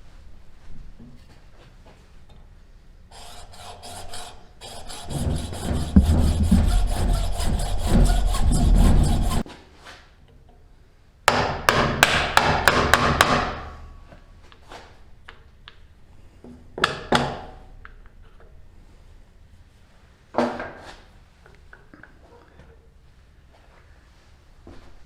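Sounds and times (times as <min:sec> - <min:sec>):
hammer striking caster wheel: 0:03.2 - 0:09.4.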